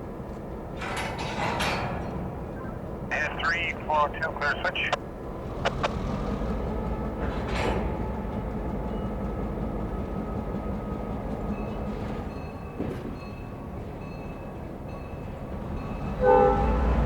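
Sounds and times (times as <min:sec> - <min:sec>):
locomotive engine rumble: 0:00.0 - 0:17.0.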